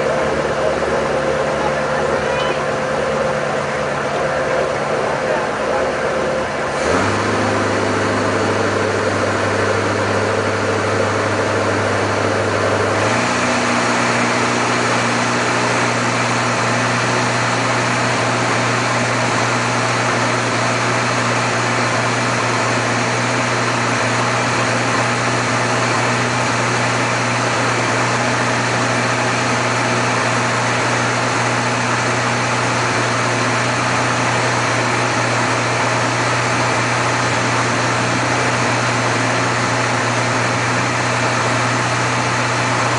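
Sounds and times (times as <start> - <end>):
boat engine running: 0.0 - 42.9.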